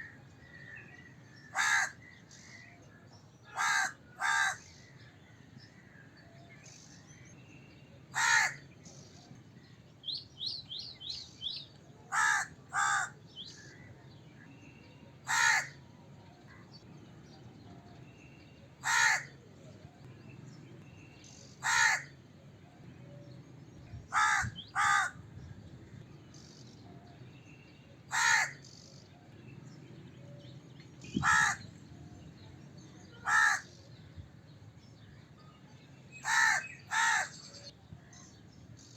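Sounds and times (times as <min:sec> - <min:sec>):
crow cawing: 0:01.5 - 0:02.1, 0:03.5 - 0:04.7, 0:08.1 - 0:08.6, 0:12.1 - 0:13.8, 0:15.2 - 0:15.8, 0:18.8 - 0:19.4, 0:21.6 - 0:22.2, 0:24.1 - 0:25.2, 0:28.1 - 0:28.6, 0:31.2 - 0:31.7, 0:33.2 - 0:33.7, 0:36.2 - 0:37.4.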